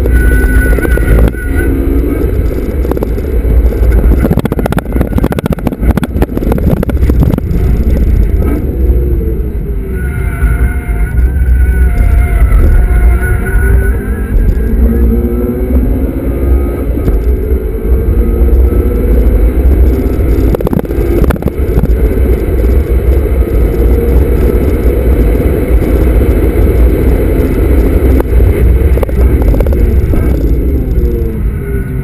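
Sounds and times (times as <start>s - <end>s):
car engine pulling hard: 0.0s - 32.0s
low road rumble: 0.0s - 32.0s.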